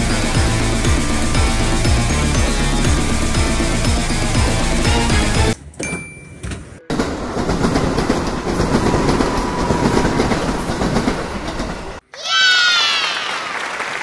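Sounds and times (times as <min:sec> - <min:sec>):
electric train approaching: 0:00.0 - 0:05.6, 0:06.8 - 0:12.0.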